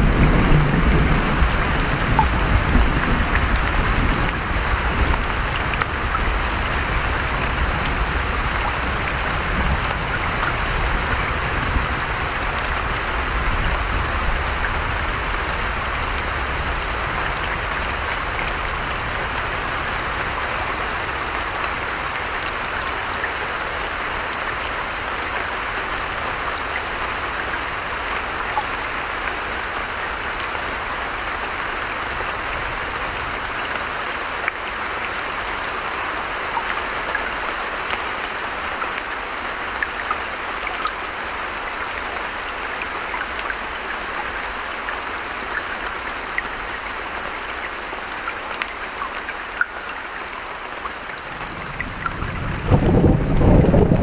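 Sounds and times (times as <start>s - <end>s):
steady rain falling: 0.0s - 54.0s
rain drop ticks: 1.8s - 3.6s.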